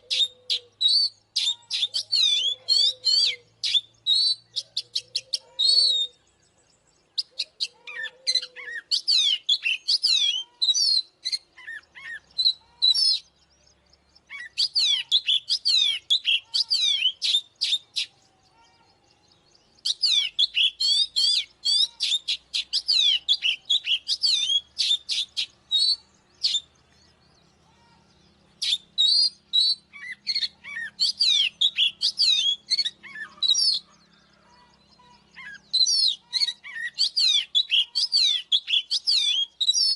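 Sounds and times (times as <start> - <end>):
bird singing sliding whistles: 35.7 - 39.9.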